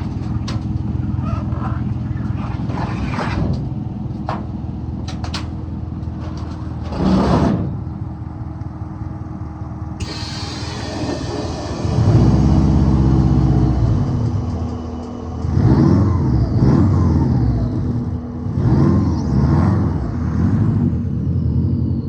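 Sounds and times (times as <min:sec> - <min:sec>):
car engine revving: 0:00.0 - 0:07.9, 0:15.4 - 0:22.0
road noise: 0:00.0 - 0:22.0.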